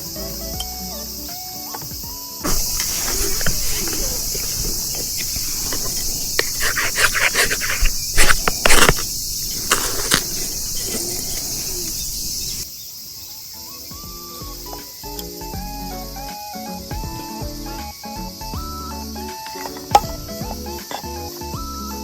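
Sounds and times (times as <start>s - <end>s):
insects chirring: 2.2s - 16.2s, 17.2s - 22.0s
ferro rod scraping: 2.4s - 12.6s.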